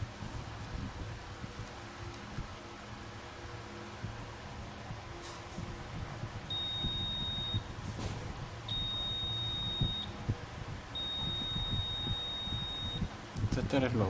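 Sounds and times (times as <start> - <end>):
multimeter continuity beeps: 6.5 - 7.7, 8.7 - 10.2, 10.9 - 13.1.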